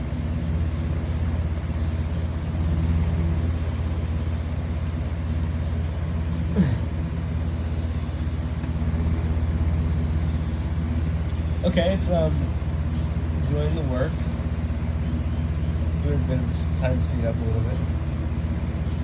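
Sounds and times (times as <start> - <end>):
box fan humming: 0.0 - 19.0.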